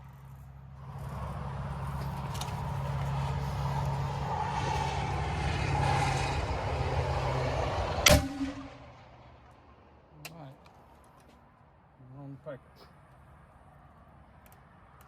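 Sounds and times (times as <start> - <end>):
vehicle engine running: 0.0 - 9.5
sharp bang: 8.0 - 9.0.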